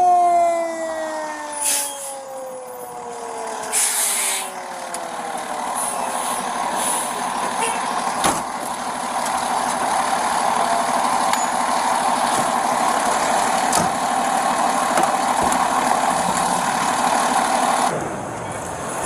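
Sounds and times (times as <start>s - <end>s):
vehicle engine idling: 4.5s - 19.0s.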